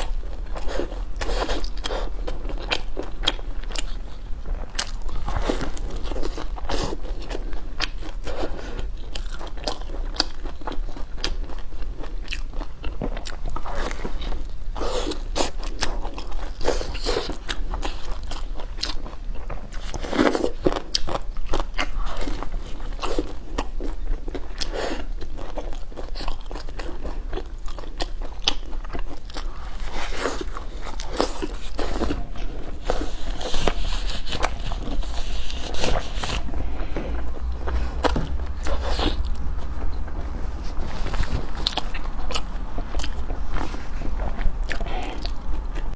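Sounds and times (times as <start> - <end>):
person biting and chewing: 26.1 - 40.0.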